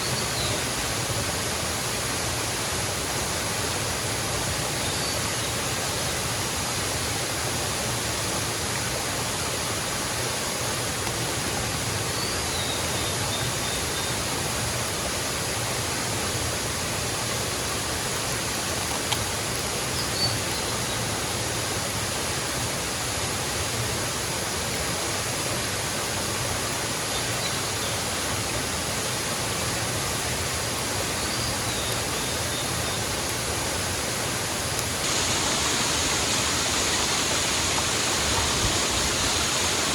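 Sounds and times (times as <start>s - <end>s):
waterfall rushing: 28.0s - 39.9s.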